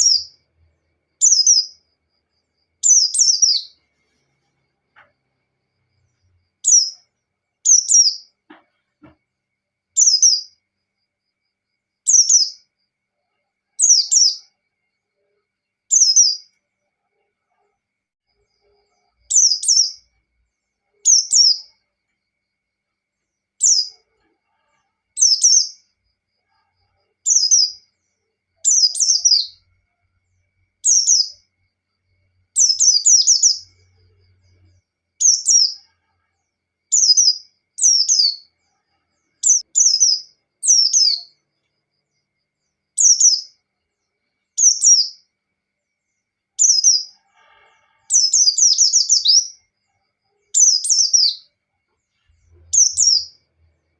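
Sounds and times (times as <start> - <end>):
bird chirping downward phrases: 0.0 - 1.9, 2.8 - 3.8, 6.1 - 8.4, 10.0 - 10.6, 12.1 - 12.7, 13.8 - 14.6, 15.9 - 16.6, 18.5 - 20.1, 20.9 - 21.8, 23.6 - 24.0, 25.2 - 25.8, 27.2 - 27.8, 28.6 - 29.7, 30.8 - 31.4, 32.6 - 34.6, 36.9 - 38.6, 39.3 - 41.4, 48.1 - 49.7, 50.5 - 51.5, 52.2 - 53.6.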